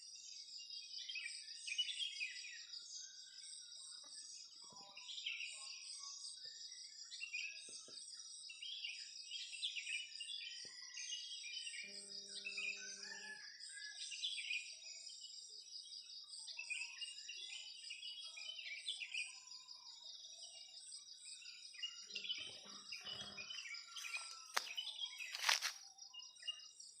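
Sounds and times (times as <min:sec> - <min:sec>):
birds chirping: 0:21.1 - 0:26.7.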